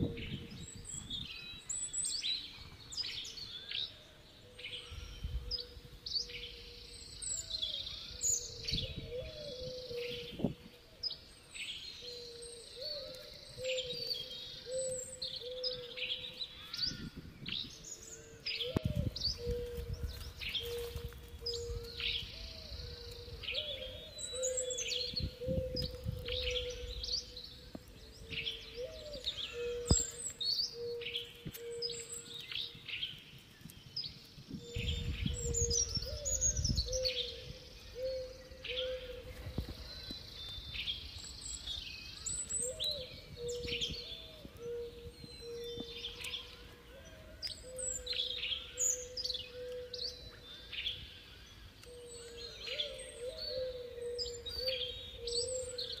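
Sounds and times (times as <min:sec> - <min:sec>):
birds chirping: 0:00.0 - 0:56.0
humming bird call: 0:11.9 - 0:32.6.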